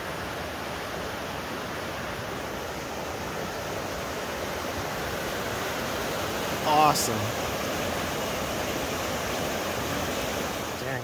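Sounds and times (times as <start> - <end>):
river rushing: 0.0 - 11.0.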